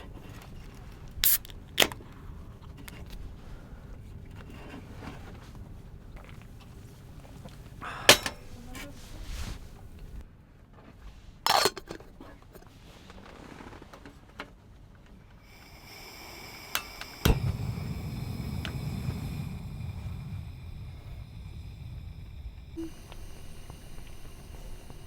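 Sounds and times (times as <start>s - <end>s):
low rumbling noise: 15.4s - 25.0s.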